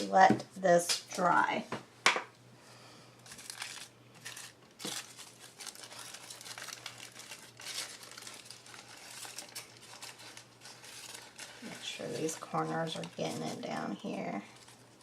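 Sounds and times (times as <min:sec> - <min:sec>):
paper crinkling and rustling: 0:03.2 - 0:15.0.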